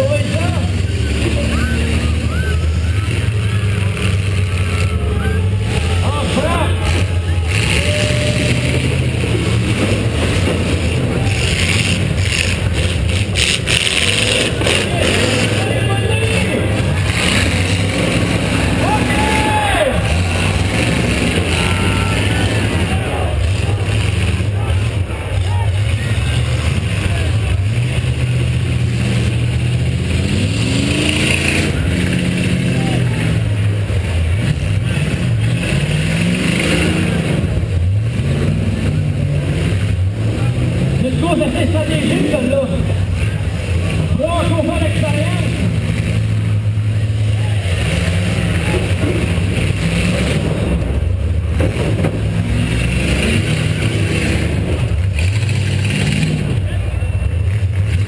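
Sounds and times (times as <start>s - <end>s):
car engine running hard: 0.0s - 58.0s.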